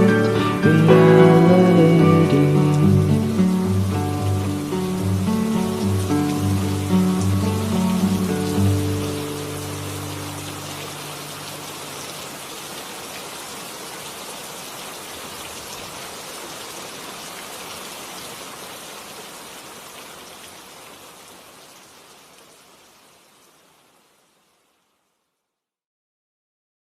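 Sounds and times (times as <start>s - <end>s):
held music notes: 0.0s - 11.8s
rain falling: 0.0s - 25.2s.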